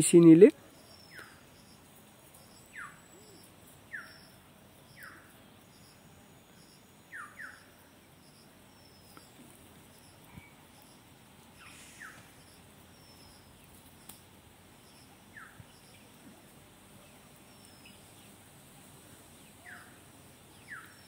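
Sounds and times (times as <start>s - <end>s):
short bird chirps: 11.6s - 13.4s.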